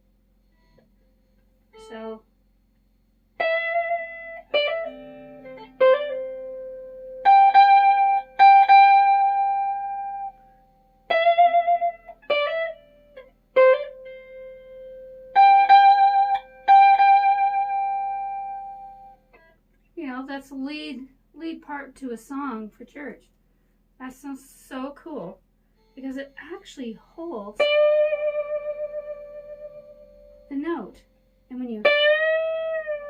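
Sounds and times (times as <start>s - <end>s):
electric ukulele melody: 3.4s - 19.5s, 27.6s - 31.0s, 31.7s - 33.0s.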